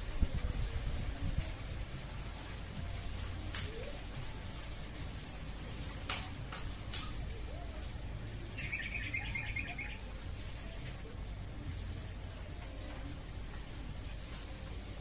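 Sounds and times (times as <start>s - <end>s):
steady hiss: 0.0s - 15.0s
small bird trilling: 8.6s - 10.0s.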